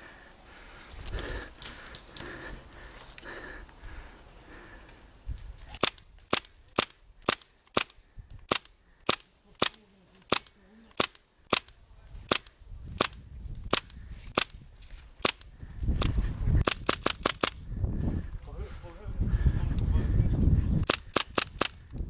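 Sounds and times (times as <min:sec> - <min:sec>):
airsoft rifle shots popping: 0:05.7 - 0:14.6, 0:15.2 - 0:17.6, 0:20.8 - 0:21.8.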